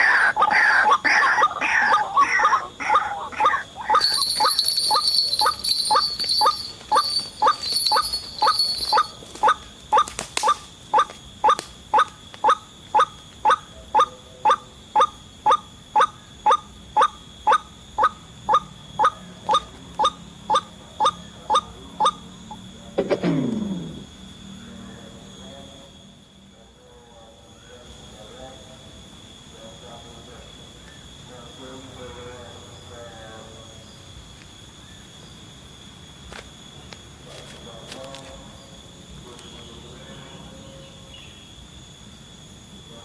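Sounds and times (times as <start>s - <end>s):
waterhen repeated call: 0.0s - 22.2s
faint high insect buzz: 0.0s - 43.0s.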